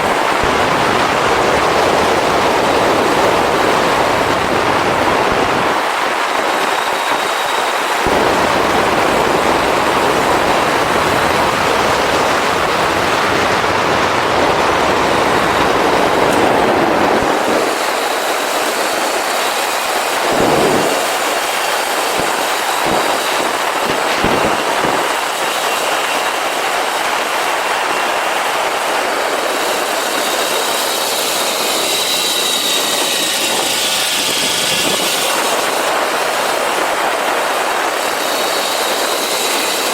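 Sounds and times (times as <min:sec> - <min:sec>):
wind buffeting gusts: 0:00.0 - 0:39.9
wind noise over microphone: 0:00.0 - 0:39.9
motorcycle engine running: 0:08.0 - 0:17.6.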